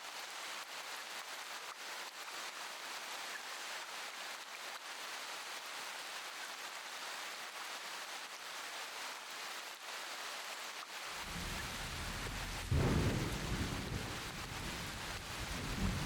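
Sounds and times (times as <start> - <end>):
steady rain falling: 0.0 - 16.0
thunder rumbling: 11.2 - 16.0.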